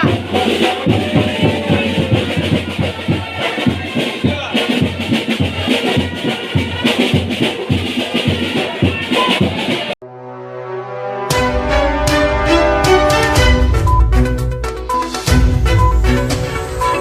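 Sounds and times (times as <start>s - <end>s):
rapid drum beats: 0.0s - 10.0s
street band playing: 0.0s - 17.0s.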